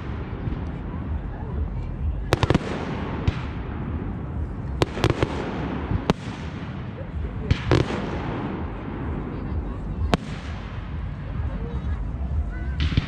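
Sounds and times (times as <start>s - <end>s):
low rumble of fireworks: 0.0s - 13.0s.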